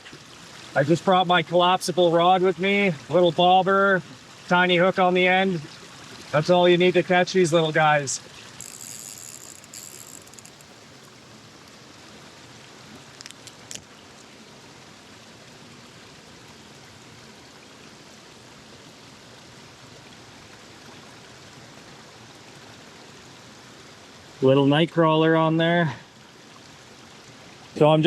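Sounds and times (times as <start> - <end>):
river current rushing: 0.7 - 14.5
small clicks: 8.6 - 11.2, 13.1 - 13.9.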